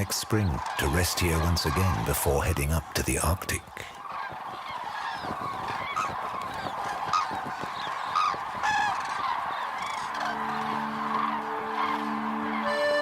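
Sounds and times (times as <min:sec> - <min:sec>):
cranes trumpeting calls: 0:00.0 - 0:13.0
low sustained music notes: 0:09.2 - 0:13.0.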